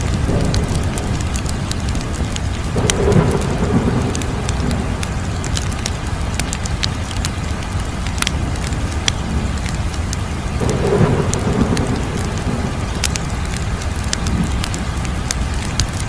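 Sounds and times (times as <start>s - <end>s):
fire crackles and pops: 0.0s - 16.0s
low rumble of flames: 0.0s - 16.0s.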